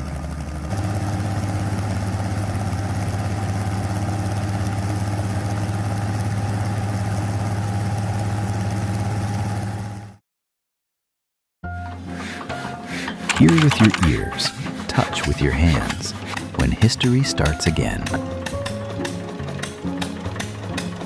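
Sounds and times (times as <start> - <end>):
engine running steadily: 0.0 - 10.1.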